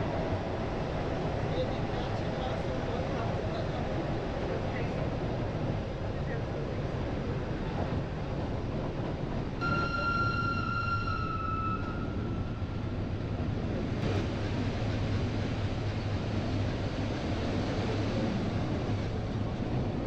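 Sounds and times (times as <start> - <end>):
train carriage rumbling on rails: 0.0 - 20.0
high steady tone: 9.6 - 12.6.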